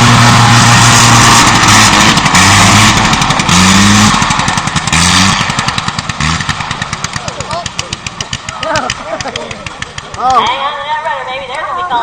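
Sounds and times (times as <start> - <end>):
light aircraft engine and propeller: 0.0 - 10.4.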